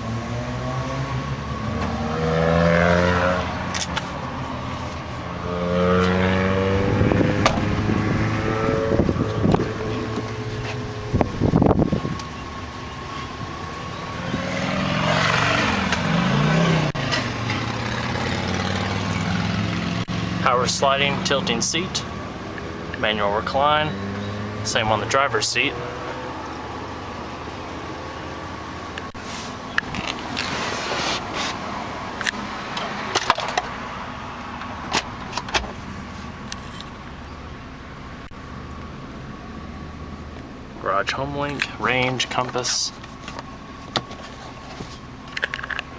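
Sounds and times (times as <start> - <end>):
car engine idling: 6.8 - 14.5.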